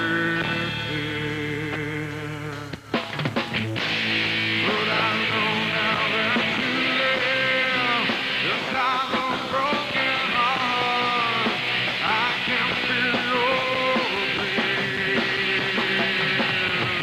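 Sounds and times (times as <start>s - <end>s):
pitch-bending lead guitar: 0.0s - 17.0s
rock band playing live: 0.0s - 17.0s.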